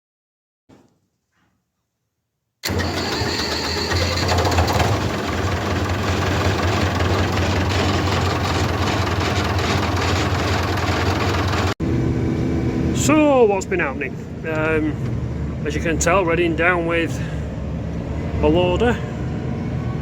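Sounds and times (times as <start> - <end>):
tractor engine humming: 2.6 - 11.8.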